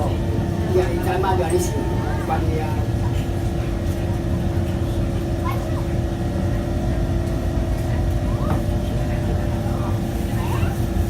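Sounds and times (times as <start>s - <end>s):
constant hum: 0.0s - 11.0s.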